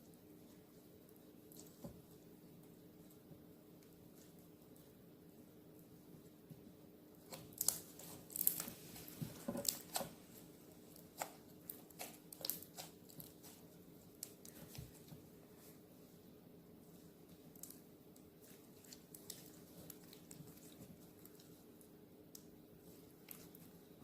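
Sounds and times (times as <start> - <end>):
slime sticky clicks and crackles: 7.3 - 8.7.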